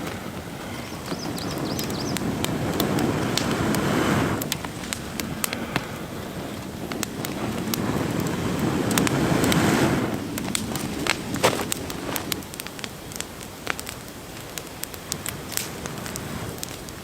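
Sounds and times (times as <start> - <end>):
wind rushing: 0.0 - 12.6
campfire crackling and popping: 0.0 - 17.0.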